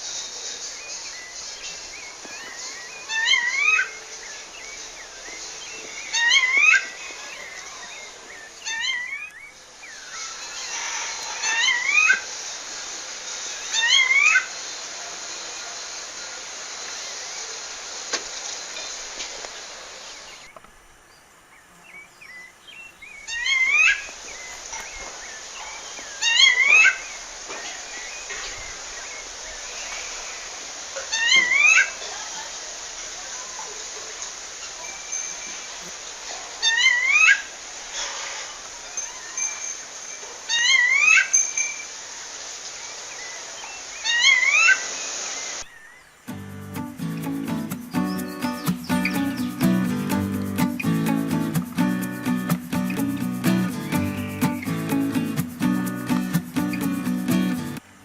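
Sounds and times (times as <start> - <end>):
steady hiss: 0.0 - 58.0
thrush calling: 1.8 - 9.3, 10.2 - 12.4, 13.6 - 14.7, 46.7 - 57.8
music: 46.3 - 57.8.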